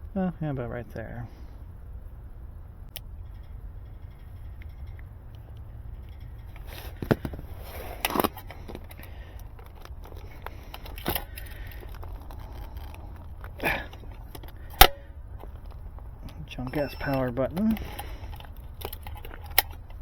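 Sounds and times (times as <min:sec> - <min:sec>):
steady low hum: 0:00.0 - 0:20.0
hand tools snipping cable: 0:06.5 - 0:20.0.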